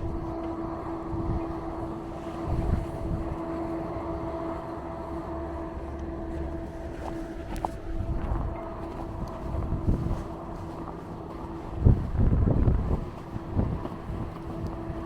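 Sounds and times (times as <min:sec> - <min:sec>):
city street traffic rumble: 0:00.0 - 0:15.0
mid-pitched mechanical hum: 0:00.0 - 0:15.0.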